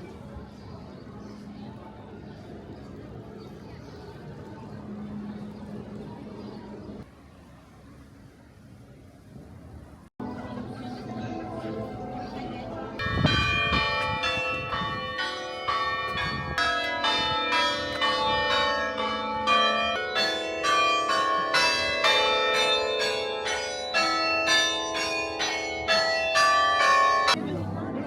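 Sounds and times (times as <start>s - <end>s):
church bells ringing: 10.2s - 28.0s.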